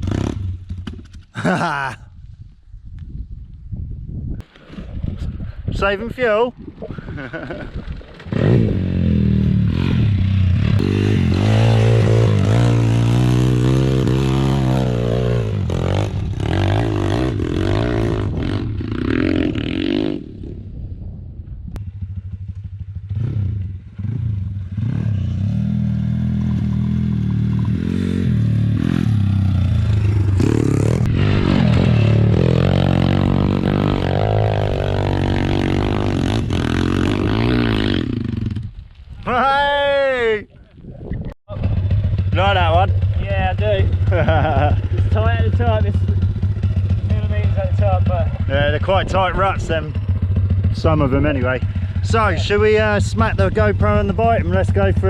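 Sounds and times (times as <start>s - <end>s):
motorbike engine revving hard: 0.0s - 0.6s, 8.3s - 20.3s, 23.1s - 38.7s.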